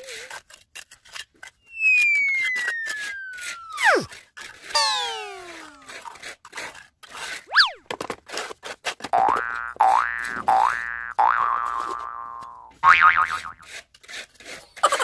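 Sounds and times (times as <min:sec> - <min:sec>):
falling slide whistle: 0:01.7 - 0:04.1, 0:04.8 - 0:05.9, 0:07.5 - 0:07.9
rising and falling chirp: 0:01.7 - 0:04.1, 0:04.8 - 0:05.8
swoosh of falling tones: 0:01.8 - 0:04.1, 0:04.8 - 0:05.9.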